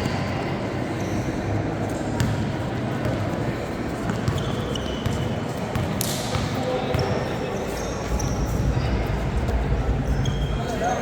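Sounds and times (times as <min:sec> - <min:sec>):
crowd murmur: 0:00.0 - 0:11.0
basketball bouncing on court: 0:02.2 - 0:07.4.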